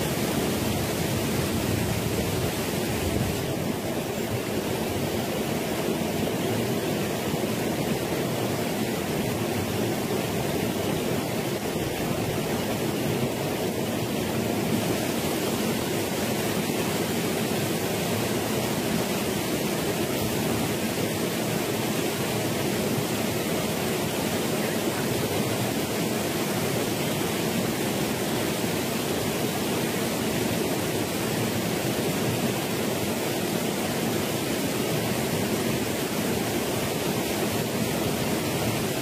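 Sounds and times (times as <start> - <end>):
waterfall rushing over stones: 0.0 - 39.0.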